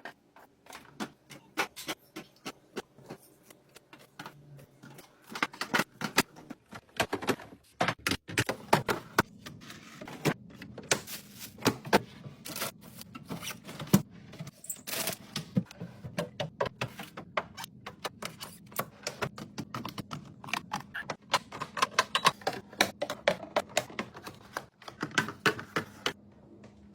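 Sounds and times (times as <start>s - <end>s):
food containers clicking and knocking: 3.8s - 9.4s, 15.2s - 26.2s.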